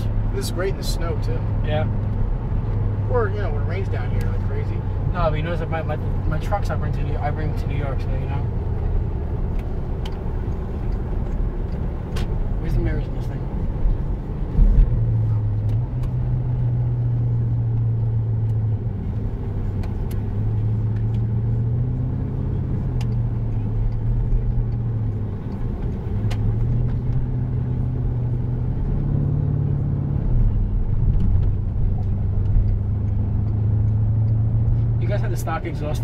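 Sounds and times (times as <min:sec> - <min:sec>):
car engine droning in cabin: 0:00.0 - 0:36.0.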